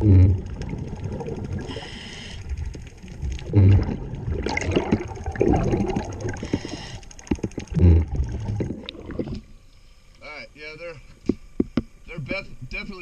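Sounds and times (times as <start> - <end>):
exhaled bubbles gurgling: 0.0 - 9.6
regulator inhale hiss: 1.6 - 2.6, 6.4 - 7.2.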